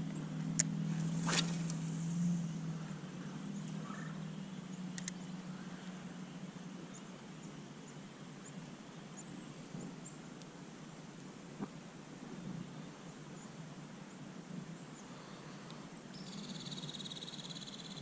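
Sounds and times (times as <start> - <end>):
low hum: 0.0 - 8.6
soft steady river hiss: 0.0 - 18.0.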